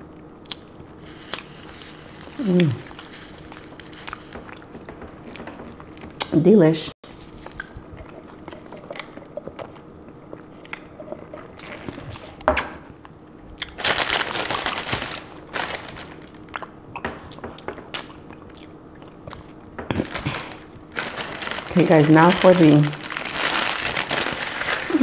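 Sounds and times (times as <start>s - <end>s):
person chewing food: 0.4s - 6.2s, 7.2s - 12.4s, 13.0s - 13.8s, 15.8s - 21.7s.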